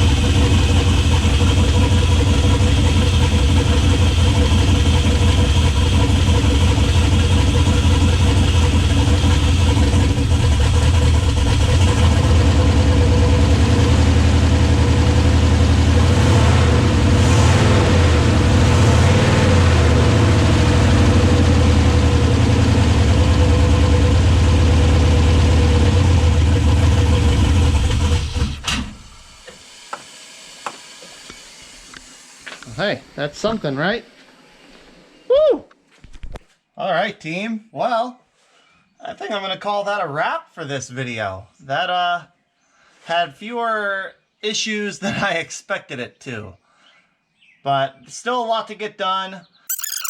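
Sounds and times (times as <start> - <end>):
engine running just off idle: 0.0 - 17.1, 19.2 - 32.8
engine shutting off: 0.0 - 35.0.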